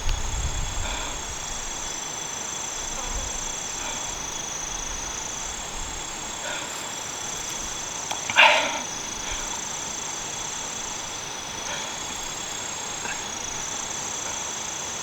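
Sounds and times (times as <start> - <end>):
insects trilling: 0.0 - 15.0
bark-like animal call: 8.3 - 9.6.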